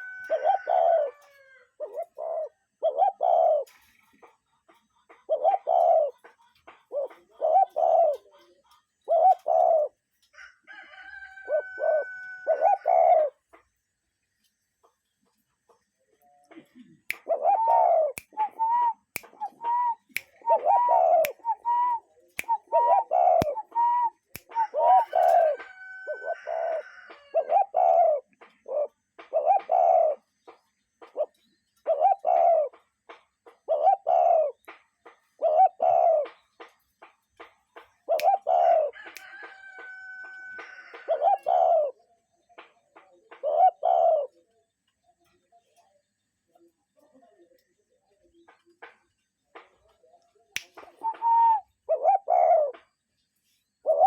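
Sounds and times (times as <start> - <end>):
bird hooting: 0.0 - 3.7, 5.3 - 6.2, 11.5 - 13.4, 16.9 - 30.3, 31.2 - 32.8, 33.7 - 34.6, 35.4 - 36.4, 38.1 - 38.9, 41.0 - 42.0, 43.4 - 44.4, 50.9 - 52.8.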